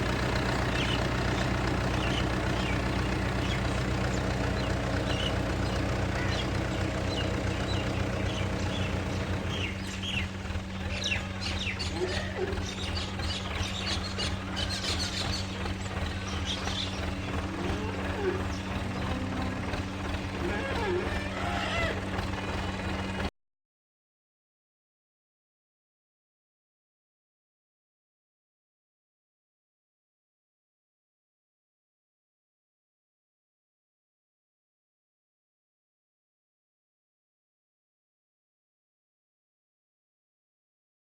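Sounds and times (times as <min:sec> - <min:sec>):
birds chirping: 0:00.0 - 0:23.3
engine idling: 0:00.0 - 0:23.3.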